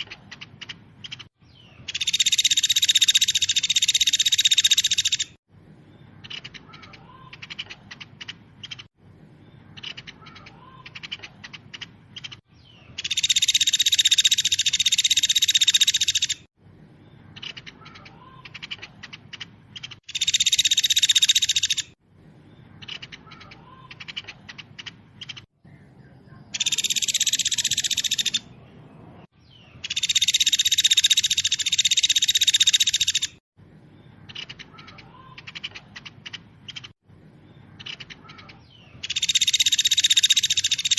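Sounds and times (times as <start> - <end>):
songbird trilling: 0.0 - 5.4, 9.6 - 16.5, 17.3 - 22.0, 26.5 - 28.7, 29.4 - 33.4, 34.2 - 40.9
bird chips: 6.1 - 8.9, 9.7 - 16.5, 17.2 - 22.0, 22.7 - 25.5, 26.1 - 28.6, 34.2 - 37.0, 37.7 - 40.9.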